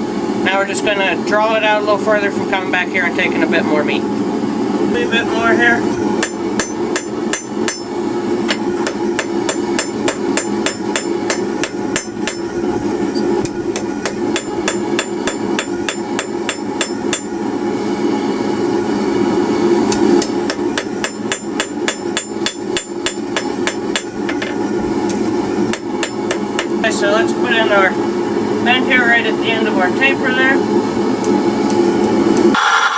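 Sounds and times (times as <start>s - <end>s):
hammer striking steel on anvil: 6.0s - 7.9s, 8.5s - 17.4s, 19.9s - 24.6s.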